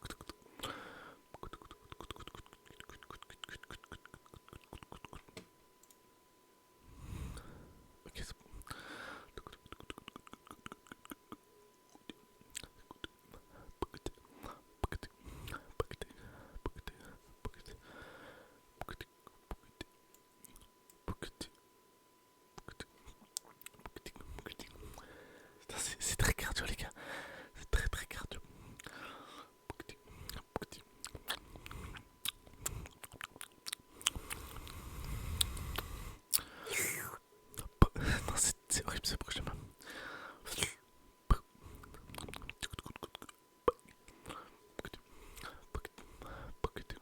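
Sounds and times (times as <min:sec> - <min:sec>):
lip and tongue clicks: 0:01.3 - 0:05.3, 0:09.4 - 0:11.4, 0:31.0 - 0:36.5, 0:41.3 - 0:44.0
breathy air: 0:08.6 - 0:09.3, 0:24.9 - 0:25.6, 0:27.0 - 0:27.6, 0:34.1 - 0:37.2, 0:39.8 - 0:40.4.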